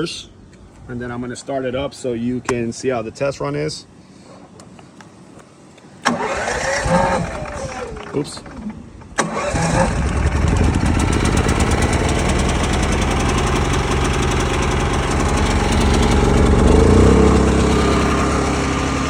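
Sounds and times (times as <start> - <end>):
generator engine running: 6.0 - 19.0.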